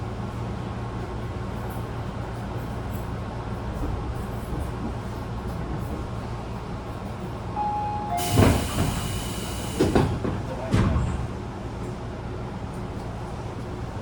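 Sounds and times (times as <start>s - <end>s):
train car low rumble: 0.0s - 14.0s
loud knocks and hiss: 8.2s - 11.2s.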